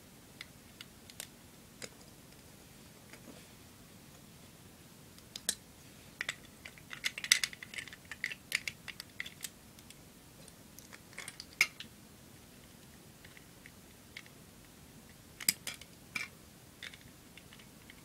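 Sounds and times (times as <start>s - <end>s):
plastic bricks clicking and rattling: 6.2s - 9.5s.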